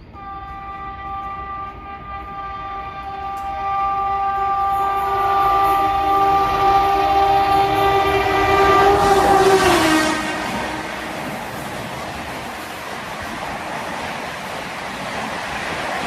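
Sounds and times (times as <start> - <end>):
train horn blast: 0.0 - 12.1
train rushing past: 0.0 - 16.0.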